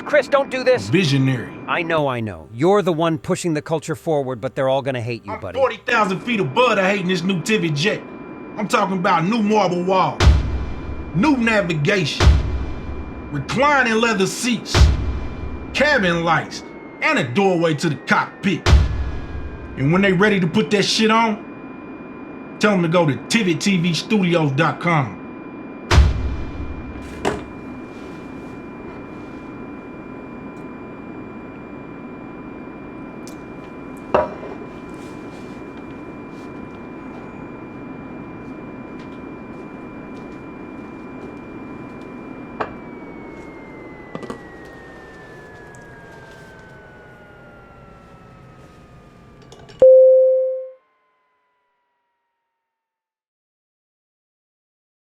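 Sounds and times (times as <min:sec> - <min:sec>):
jet engine whine: 0:00.0 - 0:52.6
loud single tone: 0:49.5 - 0:52.0.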